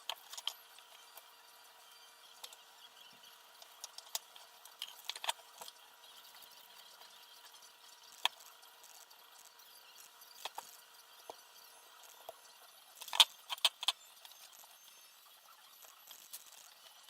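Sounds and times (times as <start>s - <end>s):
clicks and clinks of small parts: 0.0s - 1.3s, 3.6s - 5.8s, 13.0s - 14.8s.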